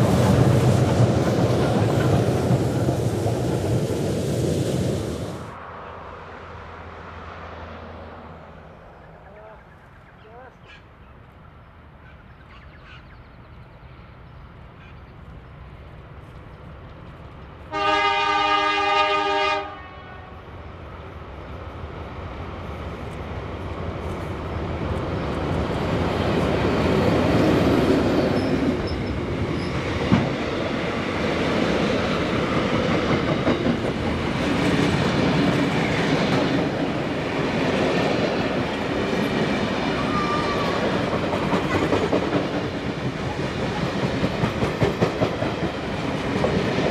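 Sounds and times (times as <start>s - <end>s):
diesel locomotive horn blast: 17.7s - 20.5s
train wheels clacking over rail joints: 32.5s - 36.9s, 40.9s - 46.9s.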